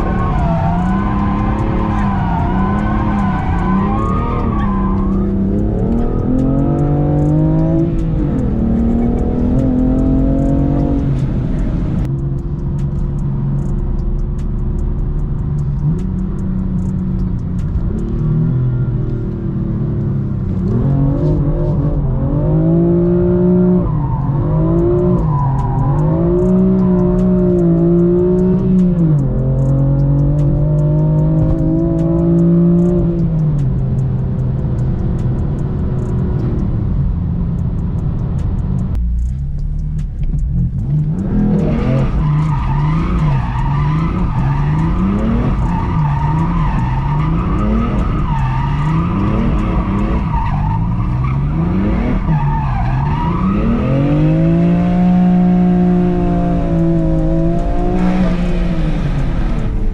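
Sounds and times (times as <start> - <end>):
tyres squealing: 0.0 - 11.0, 41.4 - 58.3
car engine revving: 0.0 - 59.9.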